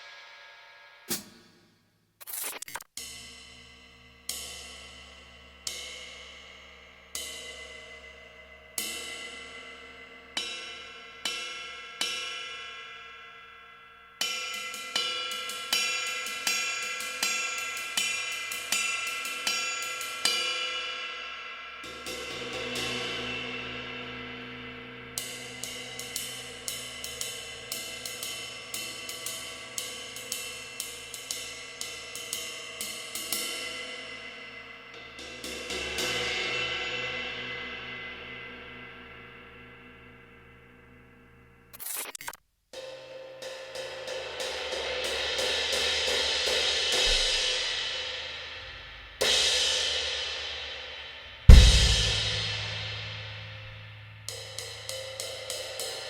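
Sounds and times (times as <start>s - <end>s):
cymbal struck with stick: 1.1s - 1.7s, 42.8s - 56.0s
sustained cymbal wash: 14.3s - 41.6s, 43.1s - 56.0s.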